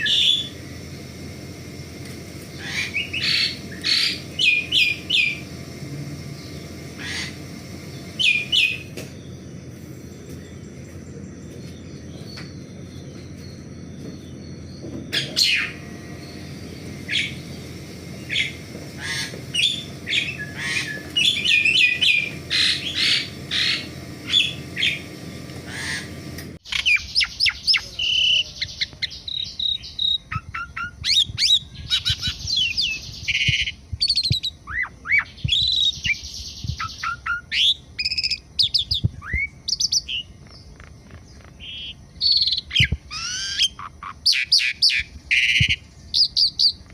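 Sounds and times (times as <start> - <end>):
starling singing: 0.0 - 0.6, 2.6 - 9.4, 14.4 - 46.9.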